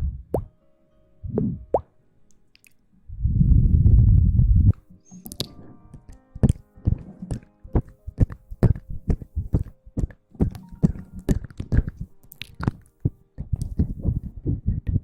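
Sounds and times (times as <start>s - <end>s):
soft rustling and tapping: 3.6s - 14.4s.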